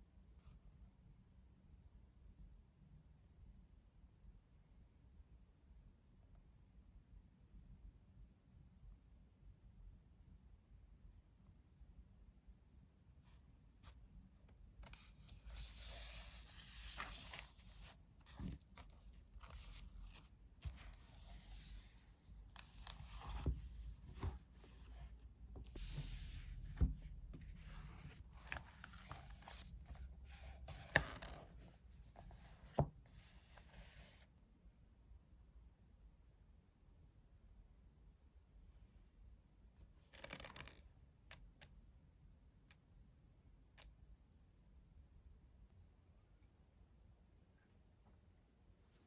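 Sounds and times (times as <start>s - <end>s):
rustling and scraping of handling: 14.8s - 34.2s.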